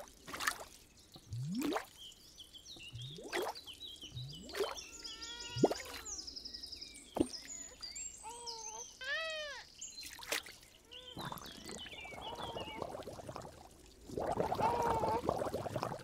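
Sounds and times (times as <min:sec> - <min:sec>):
water plops: 0:00.0 - 0:02.0, 0:02.9 - 0:03.7, 0:04.3 - 0:04.8, 0:05.5 - 0:06.1, 0:10.0 - 0:16.0
frogs croaking: 0:10.8 - 0:16.0.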